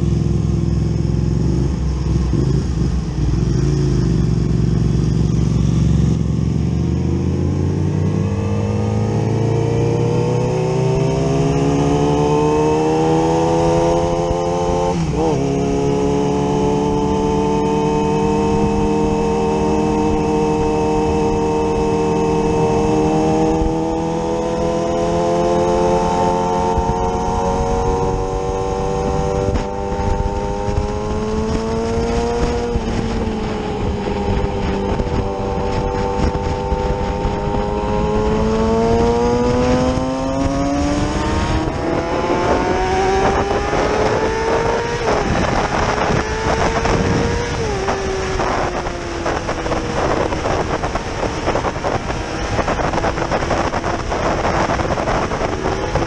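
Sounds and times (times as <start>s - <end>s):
motorcycle engine accelerating: 0.0s - 56.0s
wind rushing over microphone: 0.0s - 56.0s.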